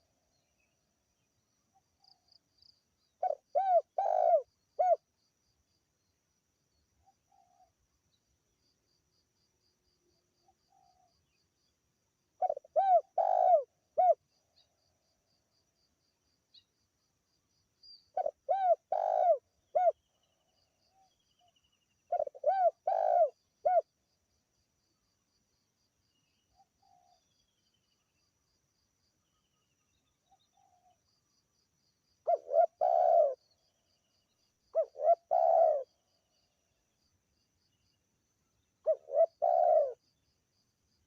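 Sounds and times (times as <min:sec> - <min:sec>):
faint insects chirping: 0:00.0 - 0:41.0
dove cooing: 0:03.2 - 0:05.0, 0:12.4 - 0:14.2, 0:18.2 - 0:20.0, 0:22.1 - 0:23.9, 0:32.2 - 0:33.4, 0:34.7 - 0:35.9, 0:38.8 - 0:40.0.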